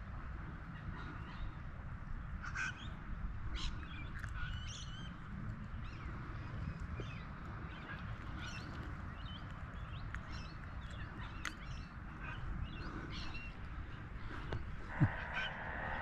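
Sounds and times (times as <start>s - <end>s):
low wind rumble: 0.0s - 16.0s
short bird calls: 10.3s - 16.0s.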